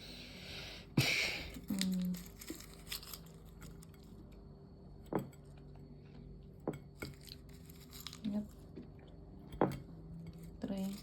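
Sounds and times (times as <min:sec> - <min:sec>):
wrapper rustling: 0:01.6 - 0:03.8.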